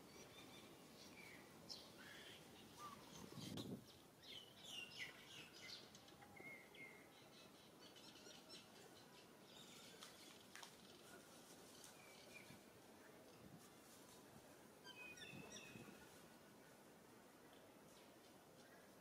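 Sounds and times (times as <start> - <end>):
bird chirps and tweets: 0.1 - 11.0, 14.8 - 16.0.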